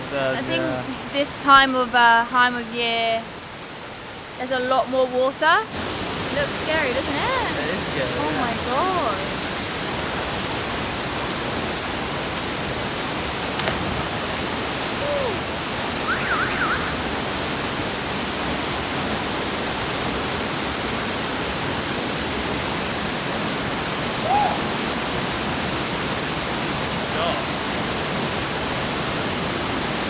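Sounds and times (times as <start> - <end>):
waterfall rushing: 5.7 - 30.0
faint calls: 14.8 - 17.1.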